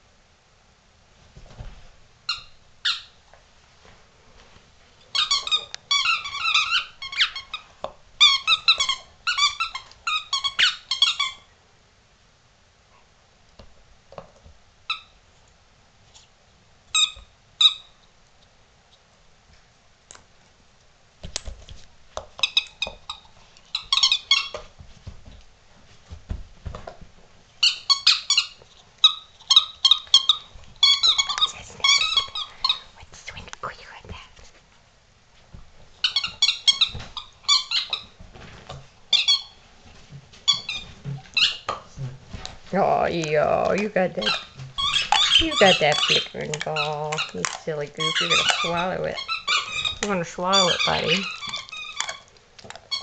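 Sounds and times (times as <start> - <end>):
squeaky rubber toy being chewed: 5.1 - 11.5, 16.9 - 18.0, 22.4 - 24.6, 27.6 - 32.8, 36.0 - 38.2, 39.1 - 39.6, 40.5 - 41.8, 43.8 - 53.0.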